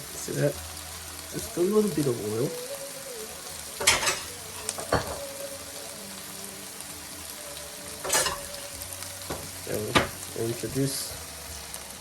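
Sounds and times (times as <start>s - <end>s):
vegetables sizzling in a frying pan: 0.0s - 12.0s
utensil knocking against pan: 9.3s - 10.2s.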